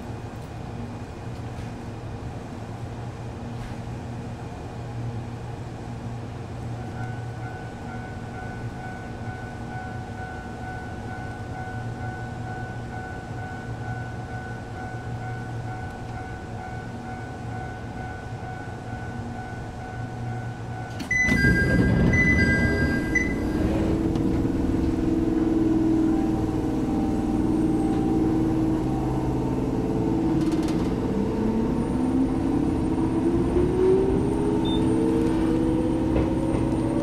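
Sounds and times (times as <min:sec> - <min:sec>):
equipment and air conditioning hum: 0:00.0 - 0:29.1
rumble with high tones: 0:01.9 - 0:37.0
faint high whining tones: 0:05.9 - 0:36.5.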